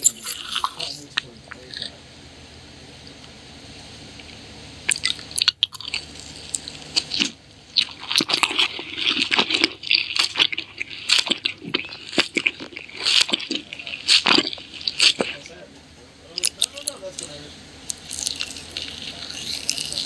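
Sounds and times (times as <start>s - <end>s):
person chewing food: 0.0s - 1.9s, 4.1s - 15.5s, 16.3s - 20.0s.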